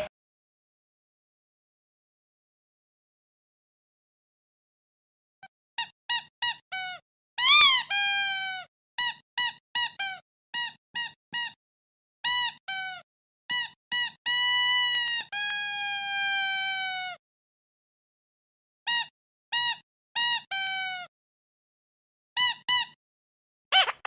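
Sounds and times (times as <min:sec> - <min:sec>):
squeaky dog toy squeaking: 0:05.8 - 0:11.6, 0:12.2 - 0:17.2, 0:18.9 - 0:21.1, 0:22.4 - 0:23.0, 0:23.7 - 0:24.0.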